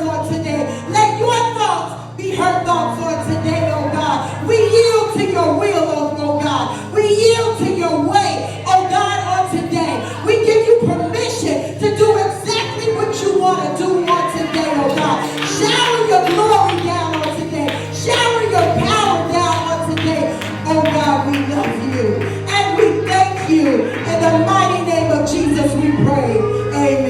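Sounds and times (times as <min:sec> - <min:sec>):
band playing: 0:14.1 - 0:24.6.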